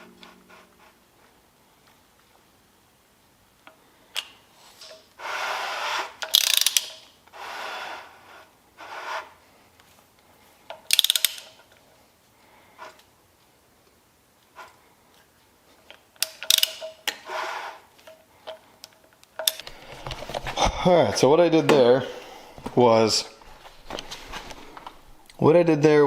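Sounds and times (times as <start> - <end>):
socket ratchet clicking: 6.2 - 7.1, 10.9 - 11.6, 16.2 - 17.2, 19.3 - 19.6
scraping noises: 19.6 - 25.2.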